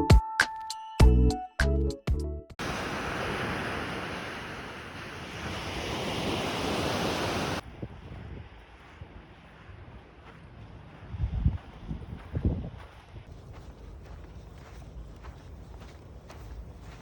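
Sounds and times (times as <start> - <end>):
sea surf washing onto beach: 2.6 - 7.6
wind on microphone: 3.0 - 14.7.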